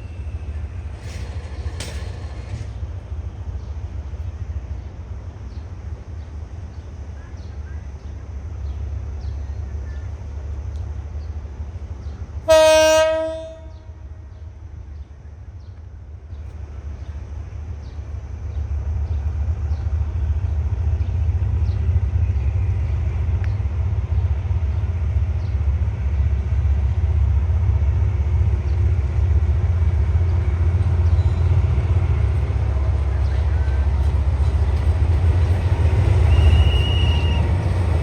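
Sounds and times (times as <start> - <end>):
train rumbling: 0.0 - 38.0
train horn blast: 12.5 - 14.2, 36.1 - 37.7.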